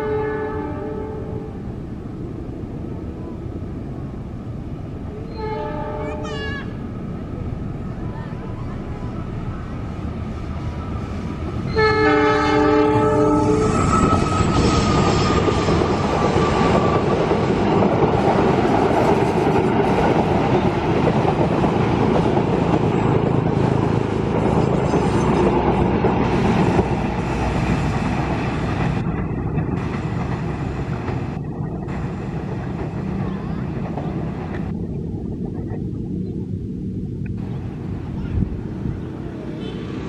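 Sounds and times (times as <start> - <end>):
locomotive horn blast: 0.0 - 1.6, 5.3 - 6.3, 11.7 - 13.8
train wheels rumbling on rails: 0.0 - 40.0.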